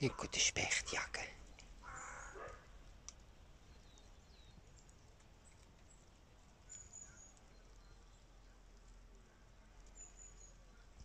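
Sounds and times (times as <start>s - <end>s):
faint bird chirps: 1.4s - 2.6s, 3.6s - 11.0s.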